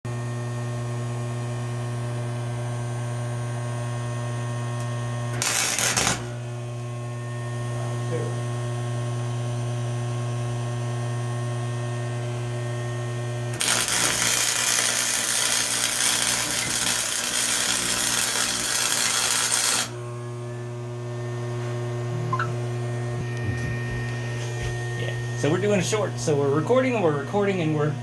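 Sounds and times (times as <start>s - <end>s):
welding arc crackling and hissing: 5.3s - 6.6s, 13.5s - 20.0s
steady electrical hum: 11.4s - 28.0s.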